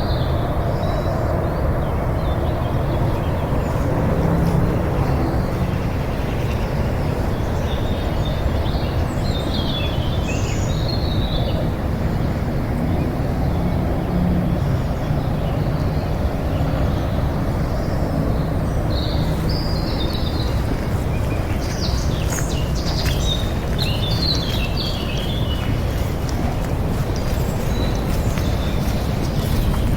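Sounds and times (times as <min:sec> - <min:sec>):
small birds chirping: 0:00.0 - 0:29.9
low outdoor rumble: 0:10.4 - 0:29.9.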